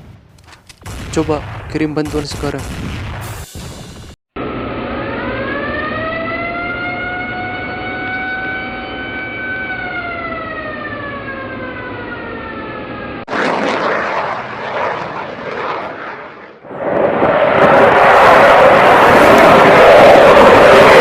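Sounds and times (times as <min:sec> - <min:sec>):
jet aircraft roar: 0:03.3 - 0:21.0
siren winding down: 0:04.4 - 0:21.0.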